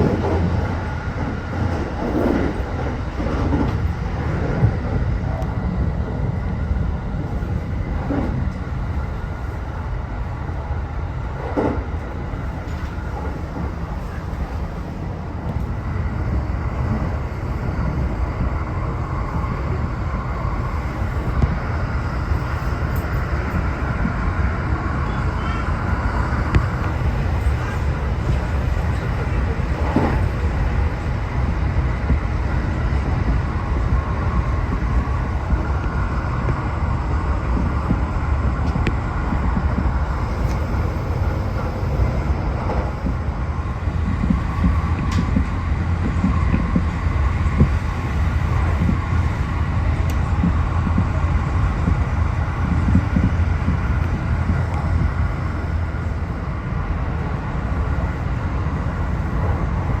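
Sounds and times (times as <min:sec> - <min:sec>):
train wheels rumbling: 0:00.0 - 1:00.0.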